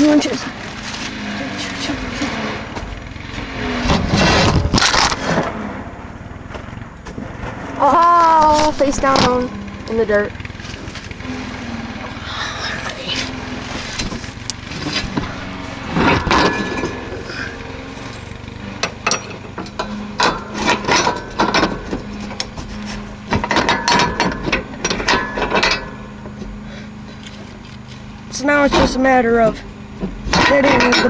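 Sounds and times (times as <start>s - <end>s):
steady low hum: 0.0s - 31.0s
metal clanks and knocks: 6.4s - 11.8s, 13.5s - 26.6s, 30.0s - 31.0s.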